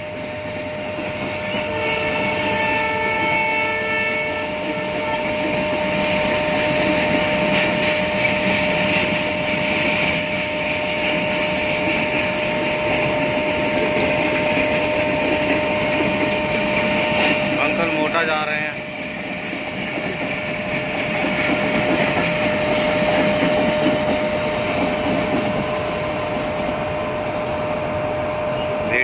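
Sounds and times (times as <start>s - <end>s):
train coaches rumbling past: 0.0s - 29.0s
train horn: 1.5s - 5.6s
wheels clacking over rail joints: 4.6s - 25.9s.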